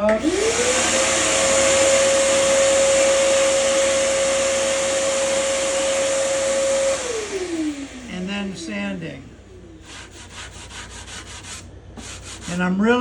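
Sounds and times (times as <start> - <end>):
vacuum motor whine: 0.0 - 9.8.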